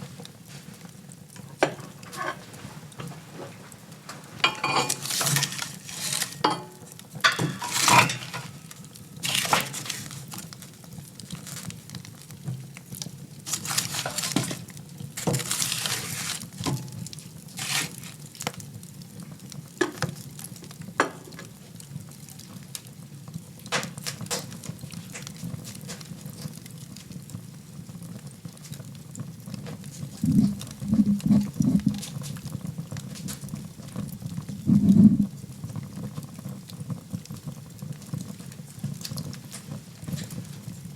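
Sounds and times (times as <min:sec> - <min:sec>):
fire crackling and popping: 0:00.0 - 0:40.9
fire rumbling: 0:22.0 - 0:40.9
low pulses: 0:30.2 - 0:32.1, 0:34.5 - 0:35.3.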